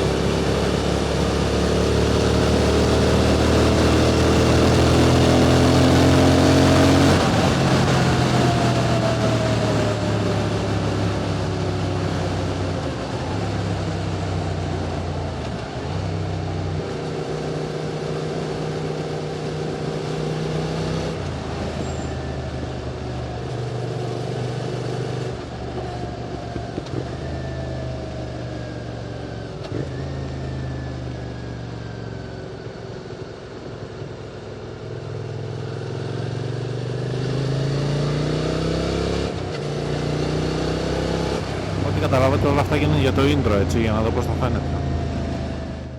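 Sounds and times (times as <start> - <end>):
motorcycle engine running: 0.0 - 20.3
road and wind noise: 0.0 - 45.9.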